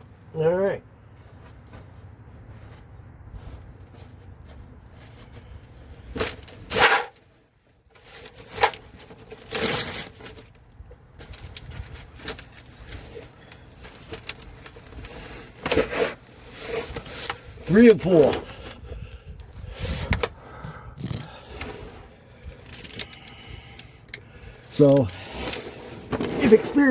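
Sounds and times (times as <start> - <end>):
hand tools clanking on metal: 6.7 - 7.2.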